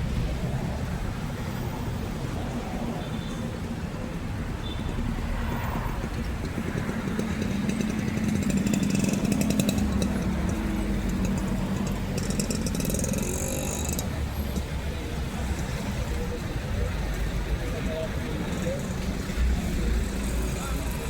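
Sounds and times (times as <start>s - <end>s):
engine running: 5.5s - 21.0s.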